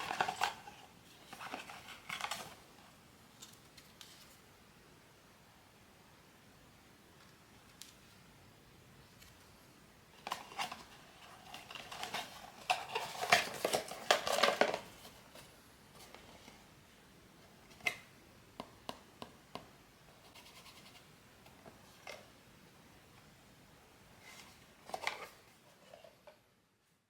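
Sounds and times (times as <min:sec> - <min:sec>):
packaging rustle: 0:00.0 - 0:02.6, 0:10.2 - 0:16.2.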